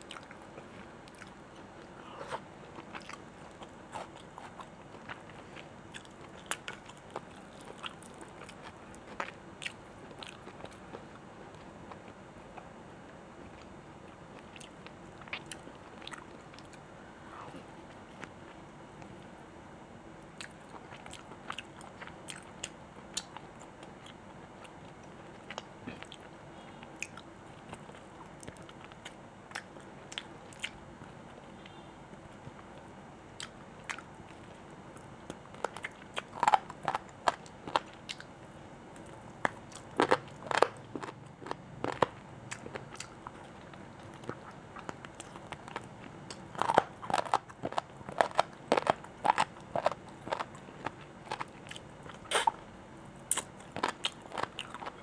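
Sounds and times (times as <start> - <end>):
chewing with mouth clicks: 0.0 - 12.7, 14.4 - 16.8, 26.9 - 30.8, 33.4 - 38.3, 38.9 - 52.6, 53.3 - 55.0
crunchy bites: 39.0 - 43.5, 44.1 - 52.6, 53.3 - 55.0.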